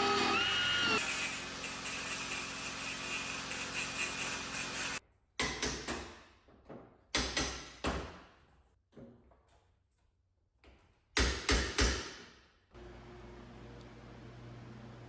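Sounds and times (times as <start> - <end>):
machine humming: 12.8 - 15.0.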